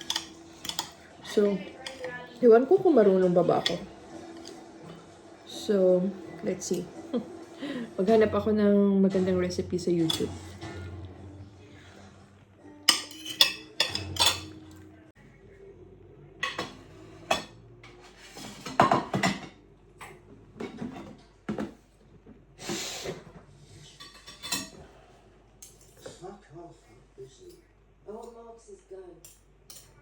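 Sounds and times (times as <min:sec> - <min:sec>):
pots and dishes clattering: 0:00.0 - 0:05.2, 0:09.1 - 0:11.0, 0:12.9 - 0:14.8, 0:16.4 - 0:22.2, 0:23.1 - 0:24.9.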